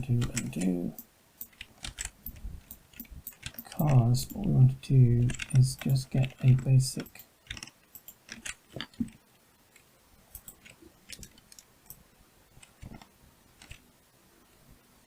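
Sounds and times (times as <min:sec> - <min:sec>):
computer keyboard and mouse clicks: 0:00.1 - 0:04.6, 0:05.2 - 0:09.2, 0:09.8 - 0:12.0, 0:12.6 - 0:13.8.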